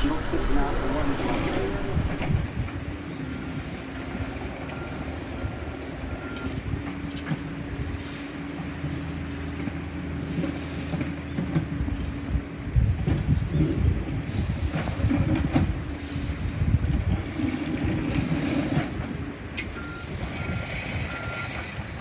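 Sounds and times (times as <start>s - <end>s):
mechanical hum: 0.0s - 2.5s
wind noise on microphone: 0.0s - 2.9s, 11.8s - 22.0s.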